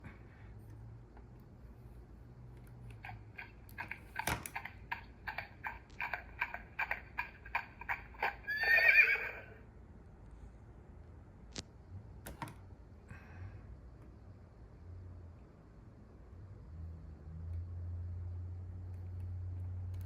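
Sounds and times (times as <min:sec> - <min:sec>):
toy hoofbeat clip-clops: 0:03.0 - 0:08.8
toy horse neigh: 0:03.0 - 0:09.6.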